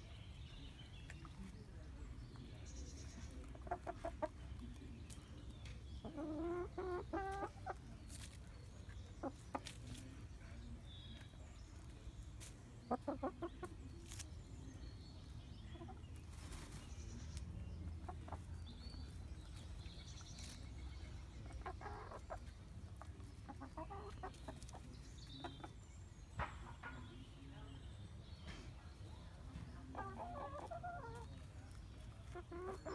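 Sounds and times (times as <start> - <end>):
hens clucking softly: 3.2 - 4.9, 5.7 - 14.2, 21.2 - 25.8, 29.5 - 32.9.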